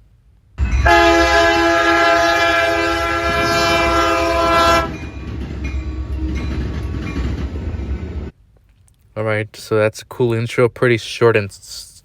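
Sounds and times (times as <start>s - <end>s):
low rumble of train: 0.0s - 8.5s
locomotive air horn: 0.6s - 5.1s.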